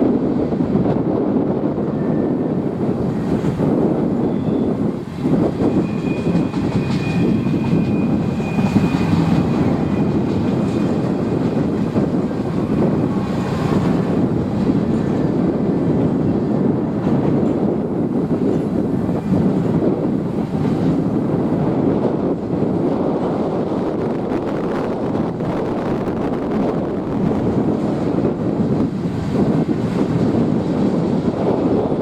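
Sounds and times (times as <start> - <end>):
train wheels rumbling on track: 0.0 - 32.0
high wheel squeal: 4.1 - 11.2.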